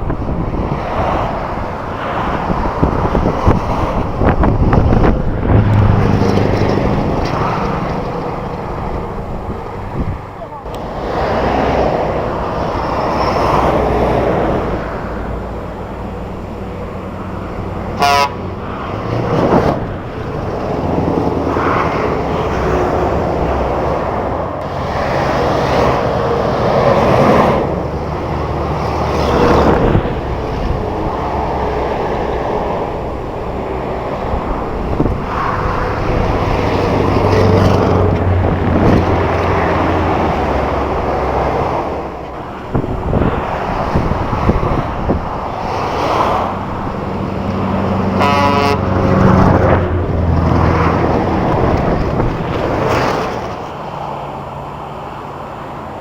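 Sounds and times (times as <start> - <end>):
heavy trucks driving past: 0.0 - 56.0
truck horn toot: 17.9 - 18.5, 48.1 - 49.5.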